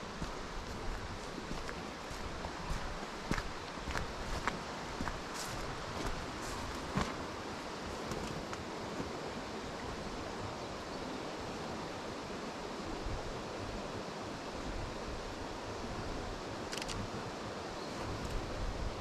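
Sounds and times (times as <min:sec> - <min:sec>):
wind blowing: 0:00.0 - 0:10.8, 0:12.2 - 0:19.0
low wind rumble on microphone: 0:00.0 - 0:19.0.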